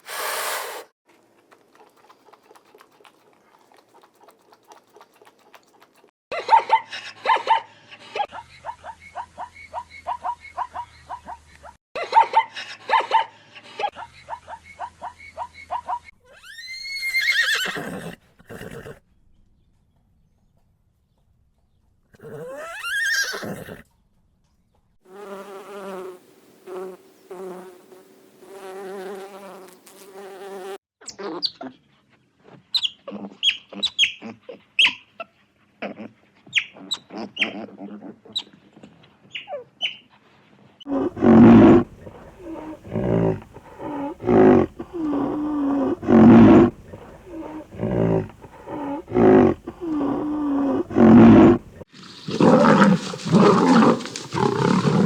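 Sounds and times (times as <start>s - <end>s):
animal roars: 40.9s - 55.0s.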